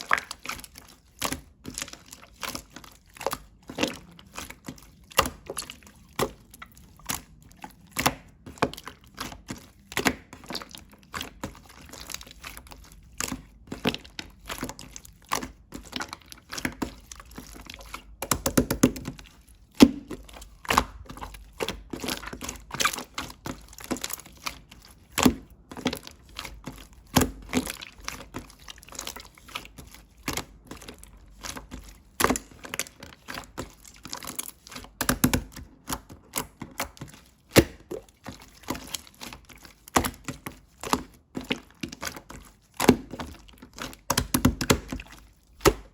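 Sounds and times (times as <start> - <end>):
slime clicking and popping: 18.2 - 19.2.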